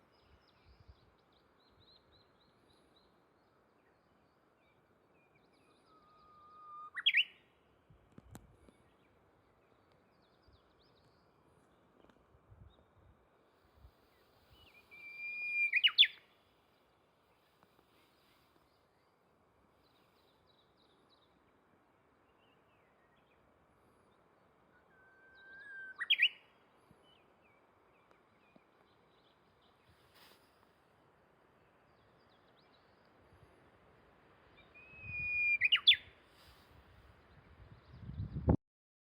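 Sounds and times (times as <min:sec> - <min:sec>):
bird singing whistle: 0:05.5 - 0:07.5, 0:14.6 - 0:16.3, 0:24.7 - 0:26.5, 0:34.6 - 0:36.2.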